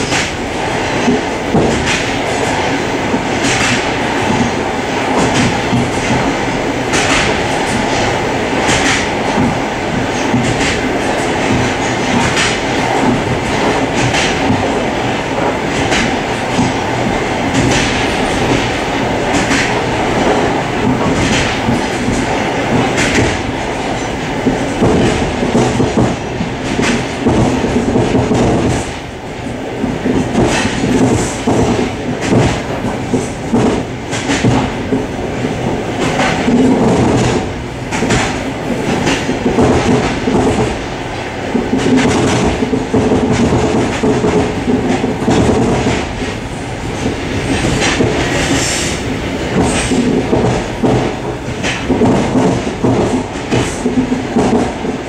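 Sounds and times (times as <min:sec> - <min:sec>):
wheel clicks on rail joints: 0:00.0 - 0:29.0, 0:29.8 - 0:40.9, 0:41.5 - 0:55.0
train rumble and rattle: 0:00.0 - 0:55.0.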